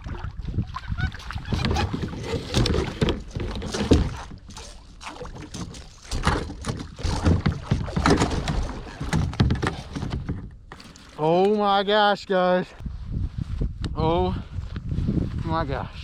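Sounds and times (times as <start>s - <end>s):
wind buffeting microphone: 0.0s - 4.5s, 12.8s - 16.0s
knocking and rustling on kayak: 1.1s - 11.6s.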